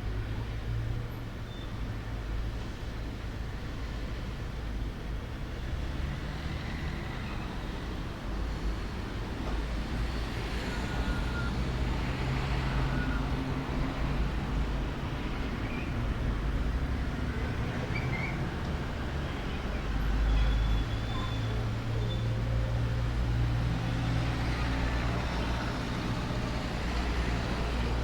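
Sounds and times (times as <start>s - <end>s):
distant road traffic rumble: 6.2s - 28.0s.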